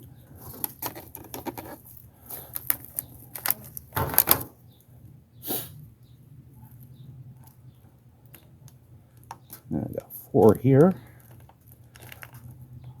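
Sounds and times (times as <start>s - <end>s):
plastic cell pack and soil rustling: 0.0s - 4.5s, 9.4s - 13.0s.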